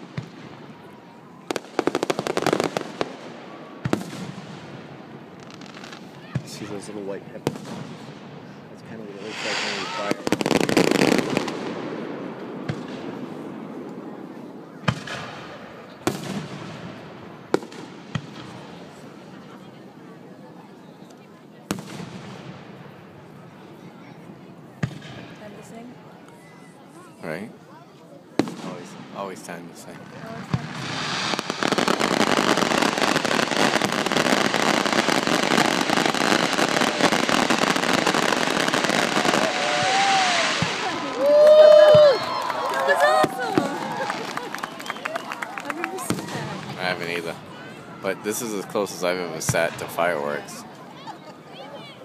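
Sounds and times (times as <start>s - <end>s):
fireworks rumble and crackle: 0.0s - 52.0s
fireworks bangs: 1.4s - 6.8s, 7.4s - 8.4s, 9.0s - 19.0s, 21.7s - 23.0s, 28.4s - 47.6s.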